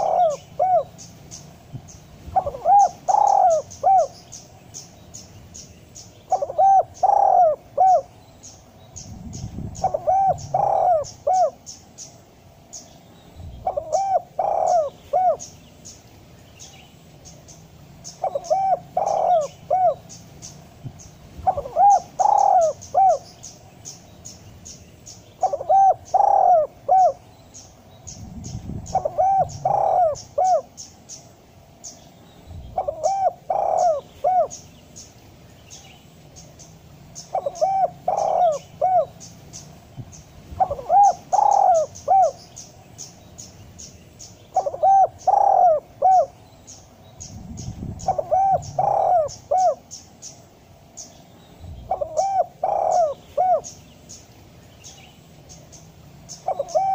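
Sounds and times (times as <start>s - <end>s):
dove cooing: 0.0s - 4.4s, 6.2s - 8.1s, 9.0s - 11.9s, 13.6s - 15.6s, 18.1s - 23.5s, 25.4s - 27.2s, 27.8s - 31.0s, 32.6s - 34.7s, 37.2s - 39.7s, 40.5s - 43.2s, 44.5s - 50.1s, 51.8s - 53.8s, 56.3s - 56.9s.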